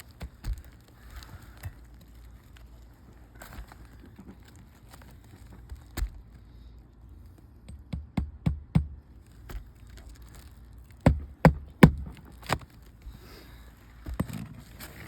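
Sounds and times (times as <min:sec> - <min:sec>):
nails hammered into roof shingles: 0:07.6 - 0:09.0, 0:11.0 - 0:12.7.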